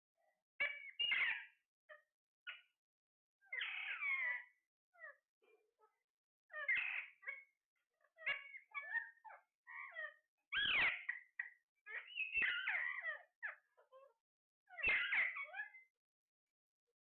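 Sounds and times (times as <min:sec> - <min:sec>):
parrot squawks and whistles: 0:00.6 - 0:01.6, 0:03.5 - 0:05.1, 0:06.5 - 0:07.4, 0:08.2 - 0:13.6, 0:14.7 - 0:15.9.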